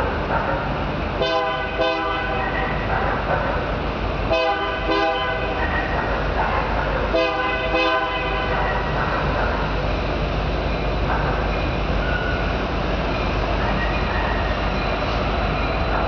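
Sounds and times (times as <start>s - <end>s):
rumble of passing train: 0.0s - 16.0s
locomotive air horn blasts: 1.2s - 2.4s, 4.3s - 5.5s, 7.1s - 8.5s.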